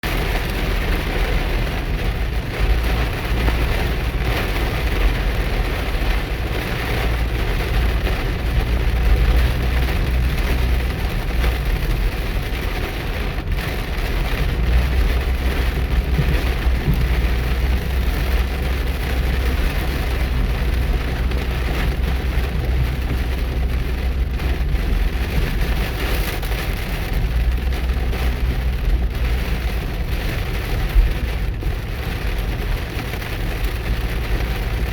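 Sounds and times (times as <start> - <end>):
car engine rumble: 0.0 - 34.9
heavy rain pounding on a car: 0.0 - 34.9
road noise: 0.0 - 34.9.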